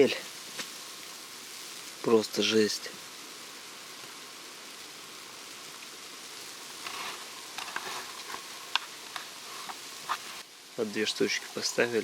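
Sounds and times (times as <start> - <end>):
hiss of wind-driven snow: 0.0 - 12.0.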